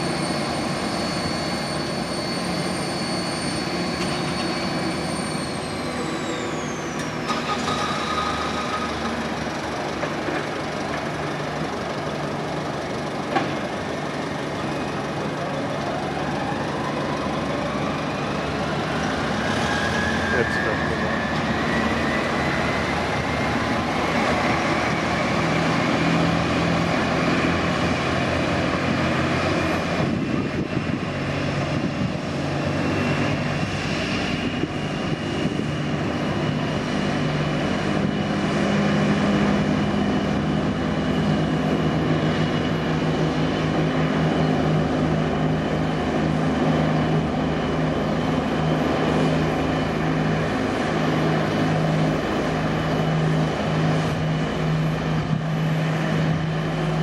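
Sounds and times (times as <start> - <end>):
jet engine whine: 0.0 - 57.0.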